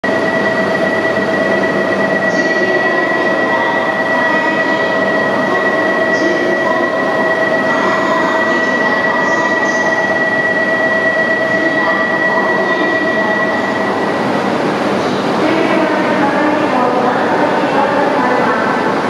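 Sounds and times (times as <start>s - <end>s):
high-pitched tone: 0.0s - 14.5s.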